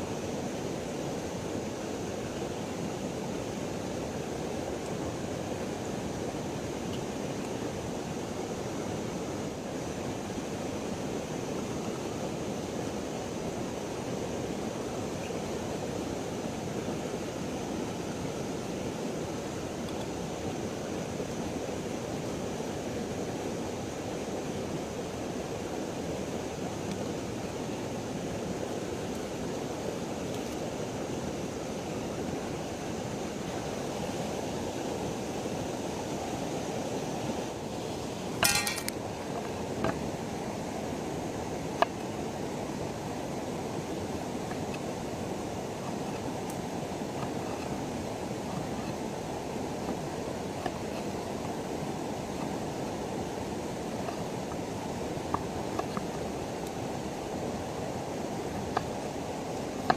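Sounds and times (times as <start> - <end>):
river water flowing: 0.0 - 59.9
sharp clink: 38.4 - 39.0.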